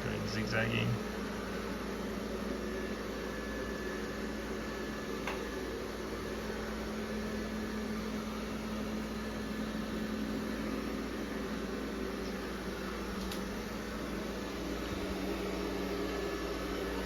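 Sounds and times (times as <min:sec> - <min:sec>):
robot vacuum motor hum: 0:02.3 - 0:17.0.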